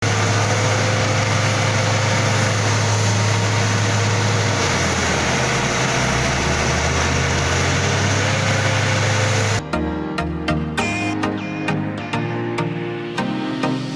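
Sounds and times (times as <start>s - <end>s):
thick wash of noise: 0.0s - 9.7s
vehicle engine humming: 0.0s - 11.2s.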